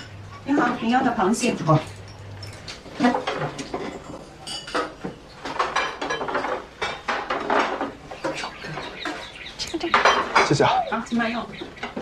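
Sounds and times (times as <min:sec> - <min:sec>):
plates and dishes clinking: 0:01.8 - 0:09.3, 0:09.9 - 0:11.0.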